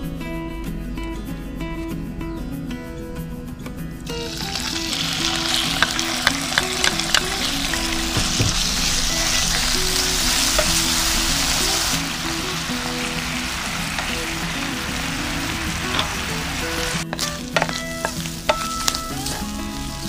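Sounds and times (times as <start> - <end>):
meat sizzling in frying pan: 4.1 - 20.0.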